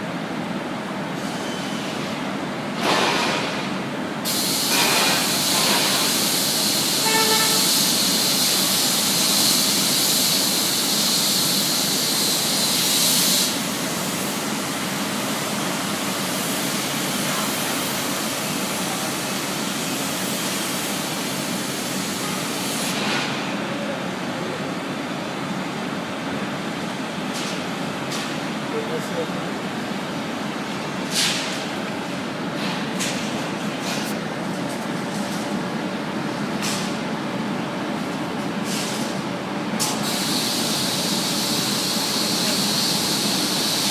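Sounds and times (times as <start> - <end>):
factory machinery running: 0.0 - 43.9
brief squeal: 1.2 - 2.0
loud high-pitched hiss: 4.3 - 23.0, 40.0 - 43.9.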